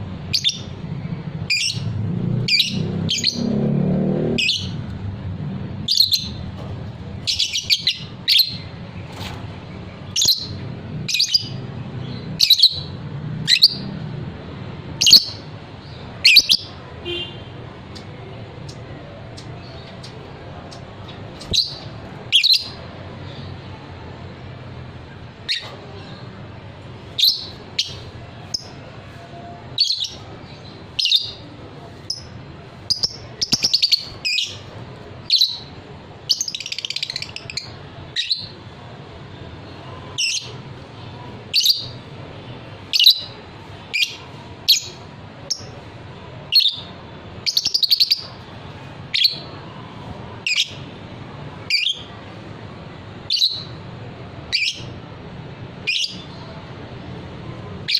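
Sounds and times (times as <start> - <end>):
bird chirping: 5.8 - 6.5, 7.2 - 8.7, 10.1 - 14.0, 19.4 - 23.5, 46.5 - 48.4, 53.3 - 53.8, 54.5 - 55.0, 55.8 - 56.4.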